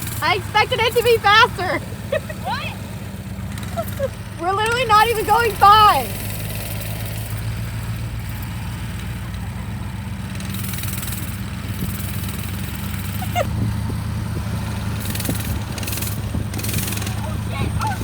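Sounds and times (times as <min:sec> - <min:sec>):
small engine humming: 0:00.0 - 0:18.0.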